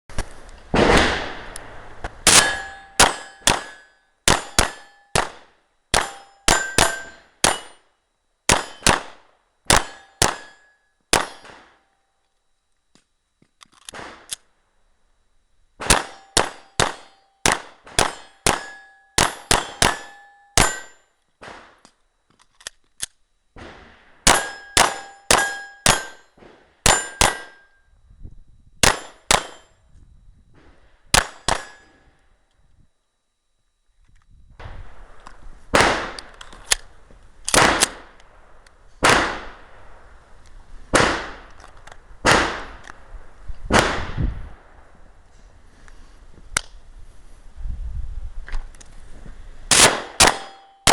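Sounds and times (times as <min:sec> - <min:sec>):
gunshots: 0:00.7 - 0:07.8, 0:08.5 - 0:11.8, 0:13.9 - 0:14.3, 0:15.8 - 0:21.8, 0:23.6 - 0:27.6, 0:28.8 - 0:29.6, 0:31.1 - 0:32.0, 0:35.7 - 0:36.4, 0:37.5 - 0:38.2, 0:39.0 - 0:39.7, 0:40.9 - 0:41.5, 0:42.2 - 0:42.8, 0:43.7 - 0:44.8, 0:49.7 - 0:50.9
steel targets clanging: 0:02.2 - 0:05.3, 0:05.9 - 0:07.9, 0:08.5 - 0:09.0, 0:09.7 - 0:11.8, 0:15.8 - 0:21.1, 0:24.2 - 0:27.8, 0:28.8 - 0:29.8, 0:31.2 - 0:32.1, 0:49.7 - 0:50.9.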